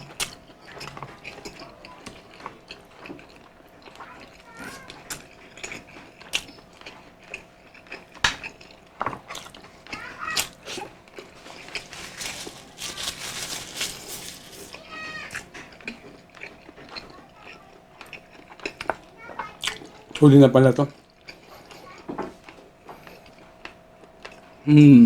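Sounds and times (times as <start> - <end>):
chewing and lip-smacking: 0.0 - 20.2, 20.9 - 24.6
slurping: 9.3 - 17.1.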